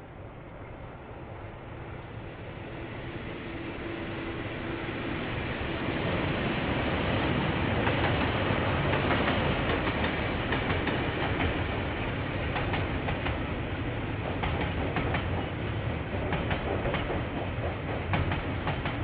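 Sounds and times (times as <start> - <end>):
train wheels clattering over rail joints: 14.2 - 19.0.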